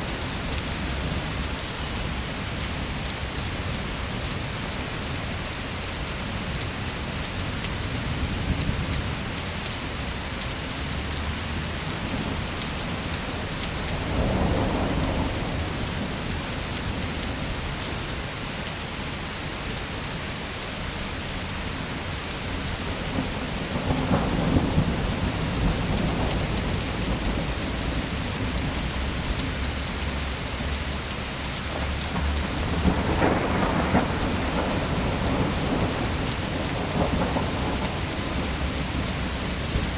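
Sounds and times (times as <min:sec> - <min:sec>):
heavy rain hissing: 0:07.8 - 0:39.9
thunder rumbling: 0:12.1 - 0:17.0, 0:22.6 - 0:30.2, 0:31.7 - 0:39.9.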